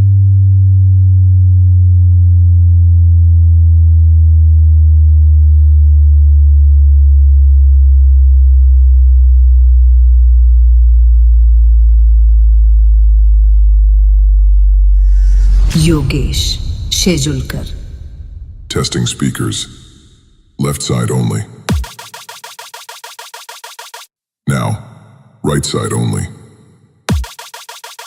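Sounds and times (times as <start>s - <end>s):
deep bass tone gliding down: 0.0s - 19.5s.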